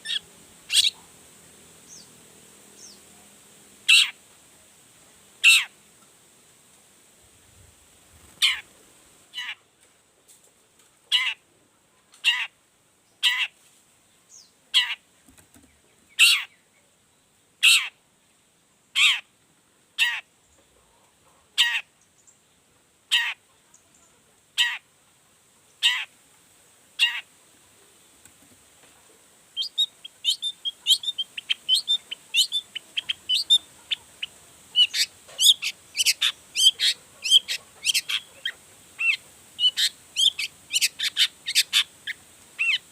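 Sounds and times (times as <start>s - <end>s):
shrike harsh falling calls: 0.0s - 1.0s, 29.6s - 42.9s
bird chattering song: 0.0s - 1.1s, 1.8s - 2.2s, 29.5s - 42.9s.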